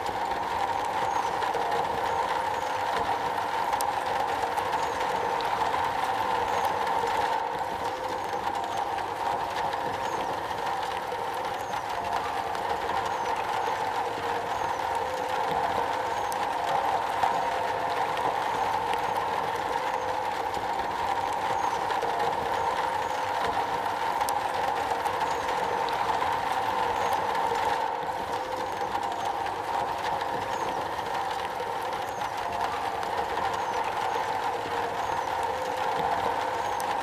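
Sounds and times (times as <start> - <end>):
rain on a metal roof: 0.0 - 37.0.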